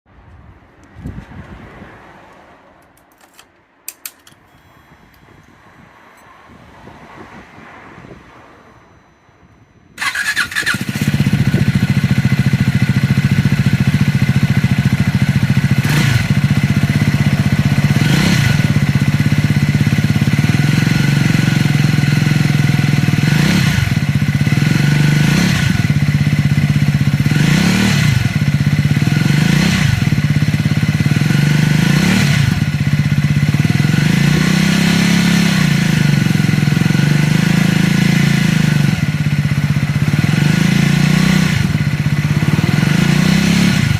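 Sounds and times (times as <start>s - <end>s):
motorcycle engine idling: 10.0s - 23.2s, 23.8s - 33.9s, 36.1s - 40.4s, 41.5s - 43.0s
engine revving: 10.0s - 43.9s.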